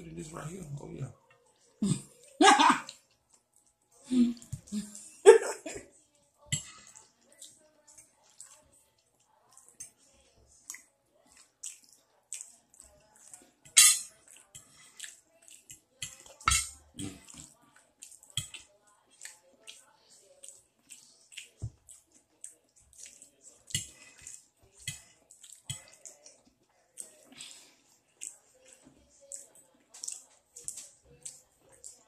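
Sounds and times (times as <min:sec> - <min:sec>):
wet chewing and lip-smacking: 0:10.6 - 0:13.5, 0:14.2 - 0:16.4, 0:17.0 - 0:32.0.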